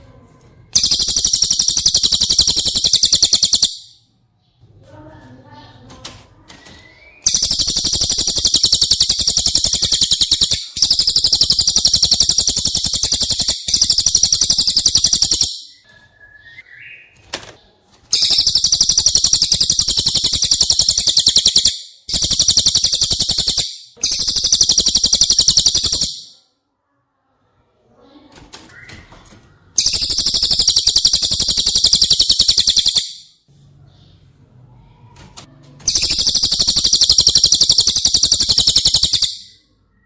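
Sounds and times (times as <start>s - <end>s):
bird buzzy trills: 0.8s - 4.0s, 7.2s - 15.8s, 18.2s - 26.4s, 29.8s - 33.3s, 35.9s - 39.6s.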